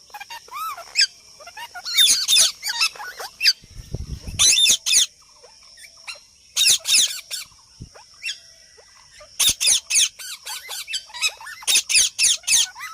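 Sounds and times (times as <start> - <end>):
parrot squawking: 0.0 - 3.6, 9.2 - 12.9.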